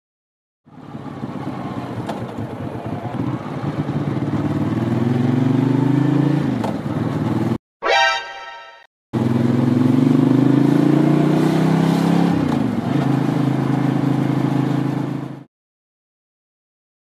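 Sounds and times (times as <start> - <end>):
motorcycle engine revving: 0.7 - 7.6, 9.2 - 15.5
short bright tone: 7.8 - 8.9.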